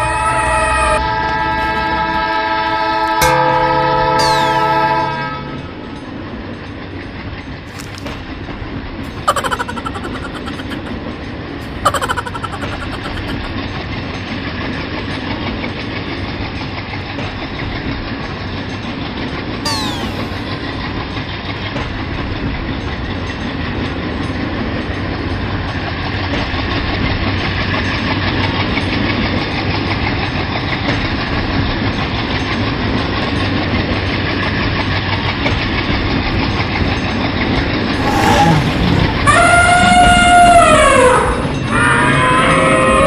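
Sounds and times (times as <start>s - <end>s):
train rumble and rail clatter: 0.0s - 4.2s, 4.8s - 9.8s, 10.8s - 19.6s, 20.7s - 38.0s
loud high animal call: 9.1s - 10.9s, 11.6s - 13.5s, 19.7s - 20.6s, 38.0s - 43.0s.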